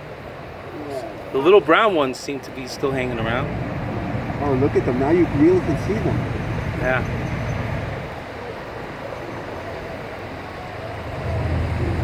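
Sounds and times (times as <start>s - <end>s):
passing vehicles: 0.0s - 12.0s
approaching vehicle rumble: 2.8s - 8.5s, 9.2s - 12.0s.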